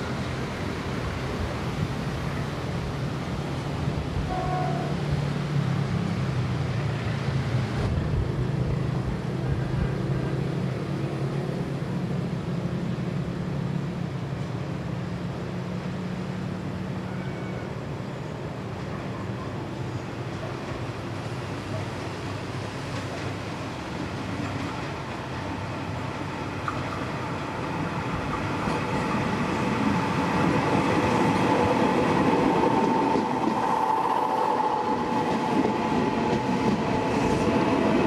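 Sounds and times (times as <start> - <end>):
freight train rumbling on rails: 0.0 - 38.0.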